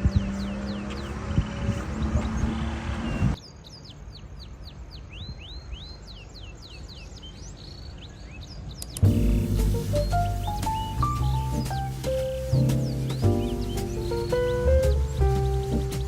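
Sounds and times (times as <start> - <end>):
birds chirping: 0.0 - 16.0
background music: 9.0 - 16.0.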